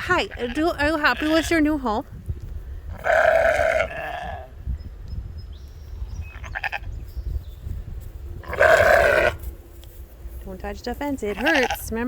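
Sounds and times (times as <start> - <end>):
sheep bleating: 3.0 - 4.5, 8.4 - 9.4, 11.3 - 11.9.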